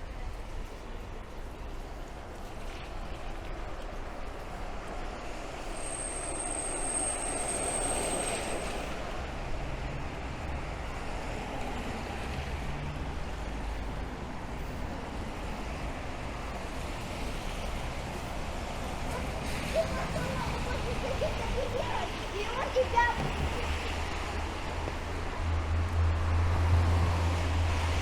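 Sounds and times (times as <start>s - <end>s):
city traffic: 0.0s - 28.0s
rain on wet street: 0.0s - 28.0s
high thin squeal: 5.7s - 8.9s.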